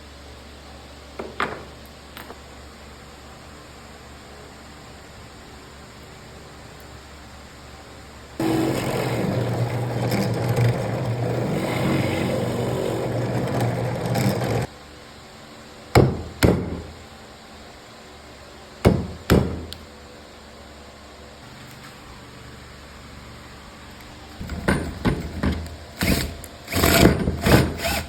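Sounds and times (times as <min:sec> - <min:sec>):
rough sound with low hum: 0:08.4 - 0:14.7.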